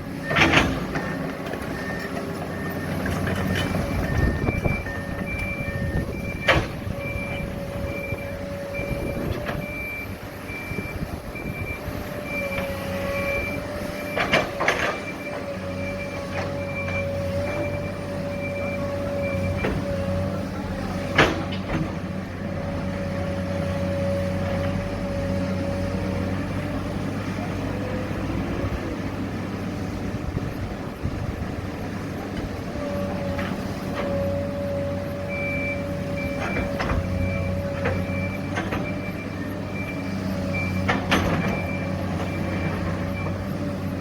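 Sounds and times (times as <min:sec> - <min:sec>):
heavy machinery engines: 0:00.0 - 0:44.0
reversing alarm beeping: 0:00.2 - 0:20.0, 0:35.2 - 0:43.5.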